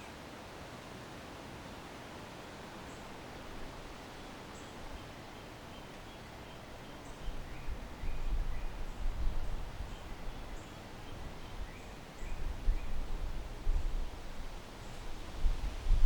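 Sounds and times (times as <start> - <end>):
wind gusting against microphone: 7.3 - 16.0.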